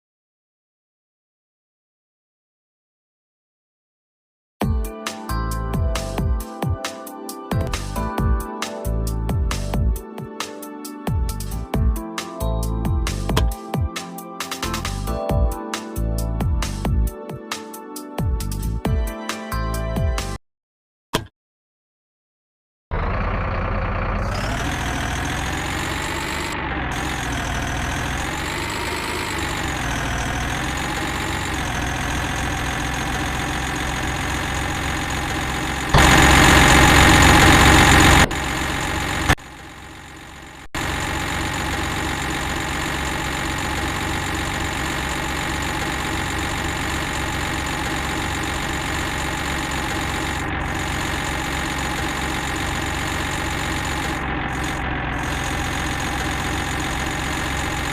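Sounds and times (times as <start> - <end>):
heavy vehicle engine idling: 22.9 - 57.9.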